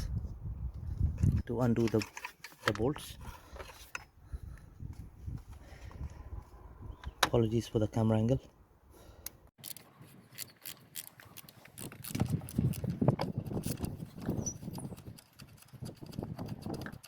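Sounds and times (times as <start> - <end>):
ratchet clicking: 10.4 - 17.0.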